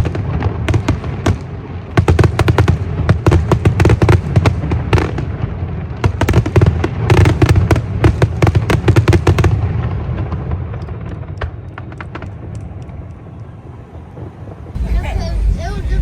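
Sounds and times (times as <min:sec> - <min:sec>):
fireworks crackling and popping: 0:00.0 - 0:16.0
low rumbling booms: 0:14.7 - 0:16.0.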